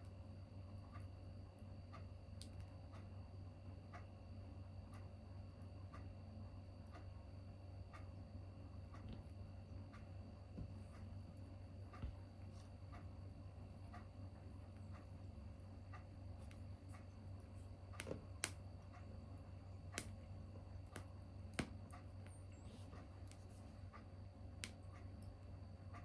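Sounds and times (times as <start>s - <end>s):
steady low hum: 0.0s - 26.0s
wood fire crackling: 13.5s - 25.3s.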